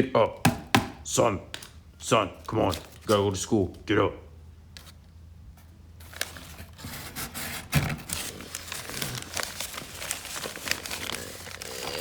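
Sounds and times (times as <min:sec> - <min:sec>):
close rustling and crinkling: 0:04.8 - 0:12.0.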